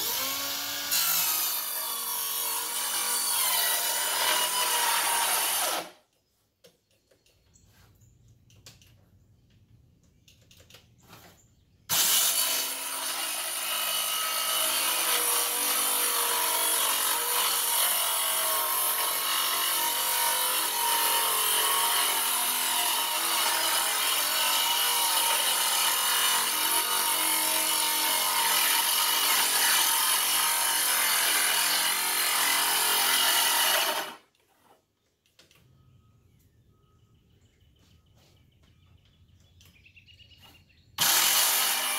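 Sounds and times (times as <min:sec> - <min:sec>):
circular saw cutting wood: 0:00.0 - 0:06.0, 0:11.9 - 0:34.8, 0:41.0 - 0:41.9.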